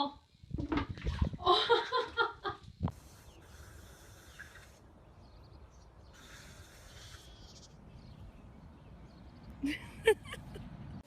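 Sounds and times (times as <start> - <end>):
animal hissing: 3.0 - 4.9, 6.1 - 7.7.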